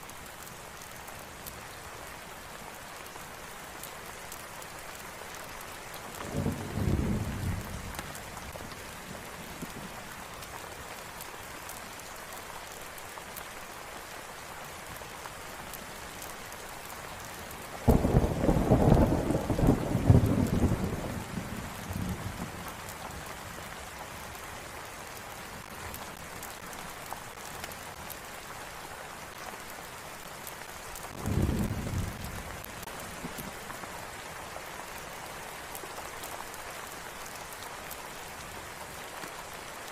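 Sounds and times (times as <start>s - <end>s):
steady rain falling: 0.0s - 39.9s
thunder rumbling: 6.3s - 7.9s, 17.9s - 22.6s, 31.1s - 32.7s.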